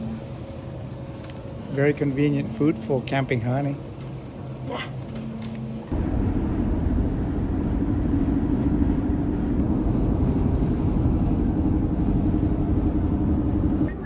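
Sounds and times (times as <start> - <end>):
van engine and road noise: 5.4 - 13.9.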